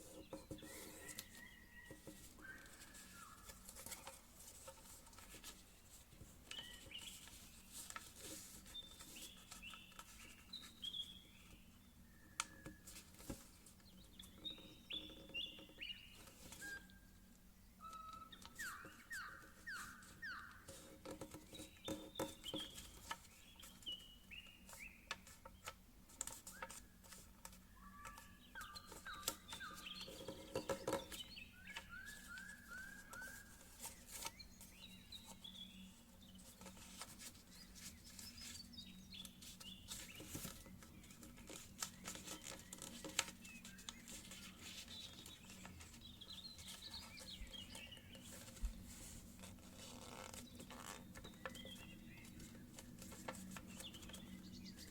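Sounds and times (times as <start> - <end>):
birds singing whistled notes: 0.0 - 4.2, 6.4 - 25.7, 26.4 - 49.1, 50.1 - 54.9
paper crinkling and creasing: 0.0 - 10.6, 24.7 - 54.9.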